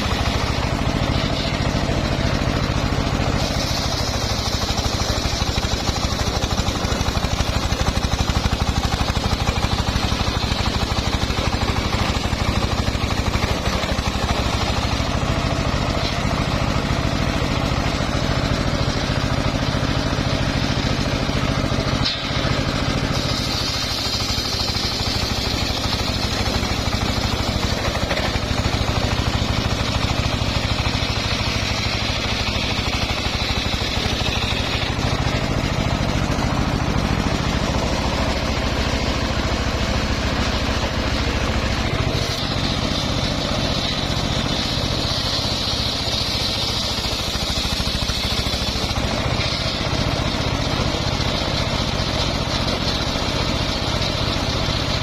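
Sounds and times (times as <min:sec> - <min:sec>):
saw blade hissing through log: 0:00.0 - 0:15.2, 0:20.5 - 0:35.5, 0:41.9 - 0:50.3
sawmill engine running: 0:00.0 - 0:55.0.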